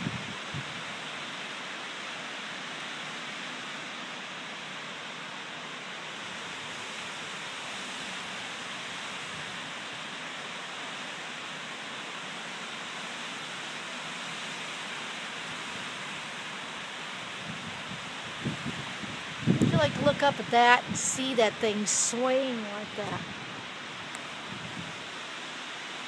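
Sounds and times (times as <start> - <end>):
wind rushing through trees: 0.0 - 26.0.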